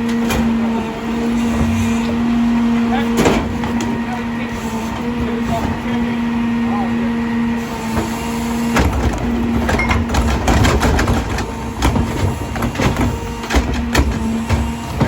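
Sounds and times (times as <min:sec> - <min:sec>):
garbage truck engine humming: 0:00.0 - 0:15.0
recyclables clattering and crunching: 0:07.9 - 0:15.0.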